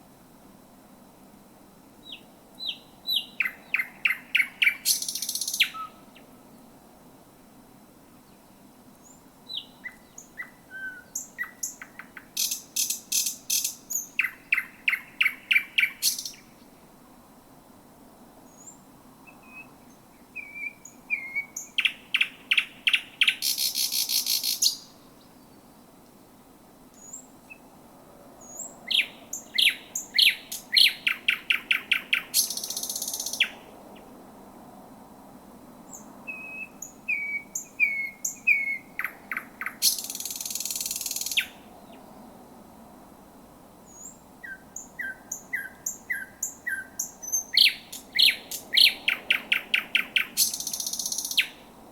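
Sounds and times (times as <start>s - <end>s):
nightingale singing: 2.0s - 6.7s, 8.2s - 16.8s, 18.4s - 26.0s, 26.9s - 27.7s, 28.4s - 33.7s, 35.9s - 42.3s, 43.9s - 51.8s.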